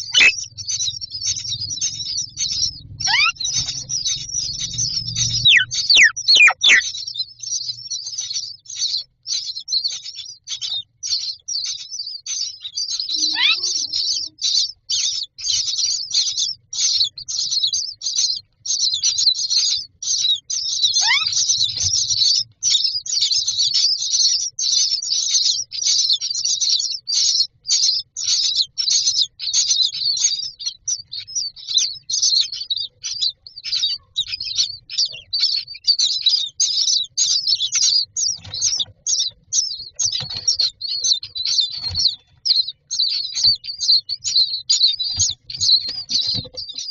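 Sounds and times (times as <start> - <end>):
chicks giving harsh begging chirps: 0.0 - 46.9
falling whistled notes: 3.0 - 6.8.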